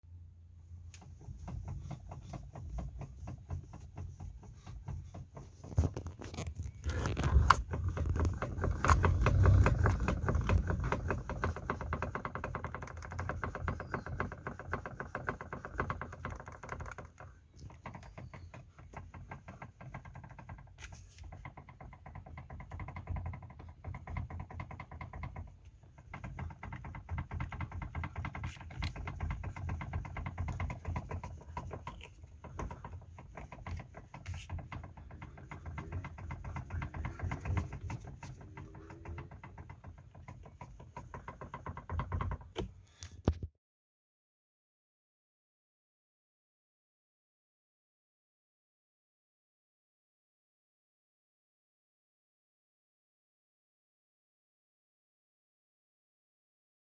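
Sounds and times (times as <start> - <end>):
steering knocks and clicks: 0.8 - 43.4.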